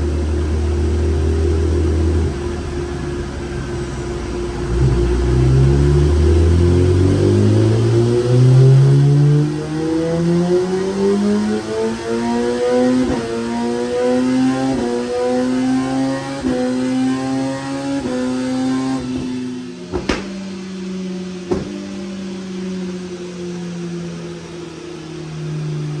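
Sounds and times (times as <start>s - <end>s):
motorcycle engine revving: 0.0s - 26.0s
exhaust cracks: 19.1s - 21.9s.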